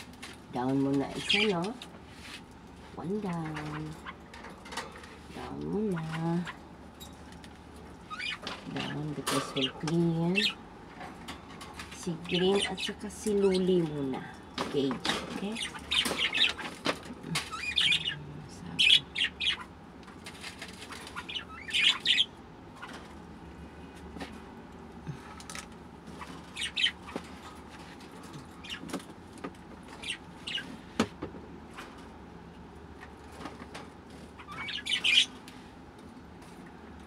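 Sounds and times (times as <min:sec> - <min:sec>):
pet birds chirping: 0:00.6 - 0:01.9, 0:03.0 - 0:04.4, 0:05.4 - 0:10.6, 0:11.6 - 0:23.3, 0:25.1 - 0:31.0, 0:33.1 - 0:35.5.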